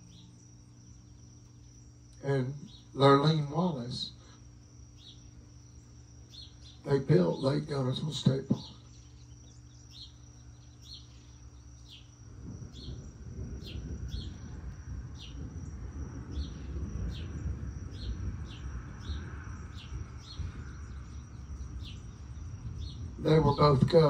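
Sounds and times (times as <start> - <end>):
bird chirping: 0.0 - 24.0
high insect-like whine: 0.0 - 24.0
low rumble: 10.3 - 24.0.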